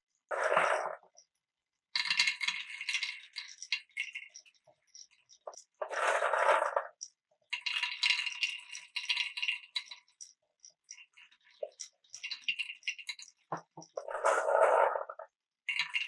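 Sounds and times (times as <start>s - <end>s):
marbles rattling through marble run: 0.3s - 1.1s, 2.0s - 16.0s
marbles clicking on track pieces: 0.3s - 1.2s, 2.0s - 16.0s.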